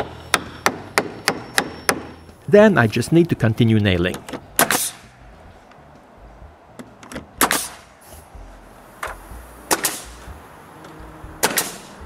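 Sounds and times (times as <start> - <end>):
nails hammered into wood: 0.3 - 2.2, 4.6 - 5.0, 7.4 - 7.8, 9.0 - 10.1, 11.4 - 12.0.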